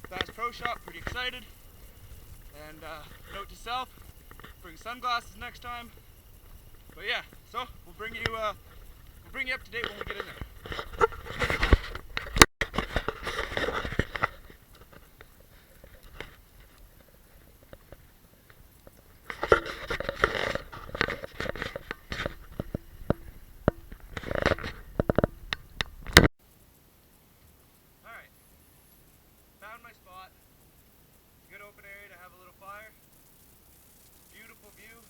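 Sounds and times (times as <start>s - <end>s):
footsteps crunching in snow: 0.0s - 18.0s.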